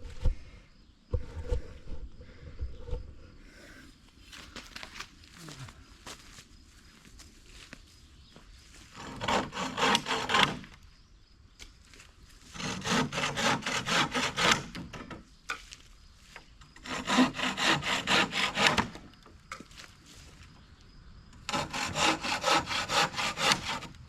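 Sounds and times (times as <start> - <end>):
hand saw cutting wood: 9.0 - 10.8, 12.5 - 15.2, 16.8 - 19.1, 21.4 - 24.0.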